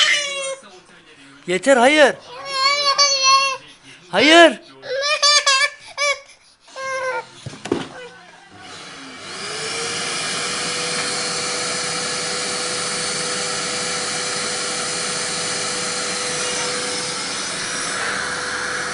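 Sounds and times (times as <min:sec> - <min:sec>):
vacuum cleaner running: 0:08.5 - 0:18.9.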